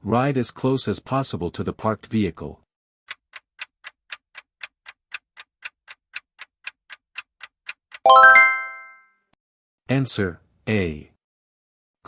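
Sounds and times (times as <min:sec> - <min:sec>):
clock ticking: 0:03.1 - 0:08.6.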